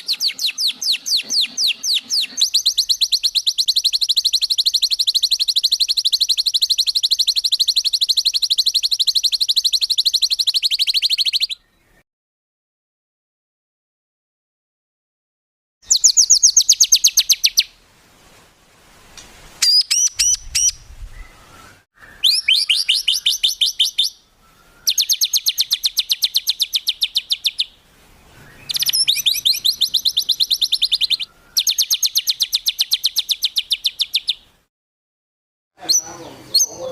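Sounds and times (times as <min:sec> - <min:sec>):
songbird rapid trills: 0:00.0 - 0:11.6, 0:21.6 - 0:34.4
sharp whistled bird notes: 0:00.0 - 0:11.8, 0:15.8 - 0:17.7, 0:19.6 - 0:27.7, 0:28.3 - 0:34.4.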